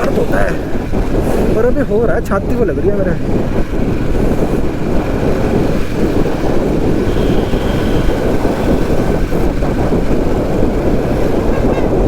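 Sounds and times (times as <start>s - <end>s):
road noise: 0.0s - 12.0s
wind rush on microphone: 0.0s - 12.0s
motorcycle engine: 3.2s - 12.0s.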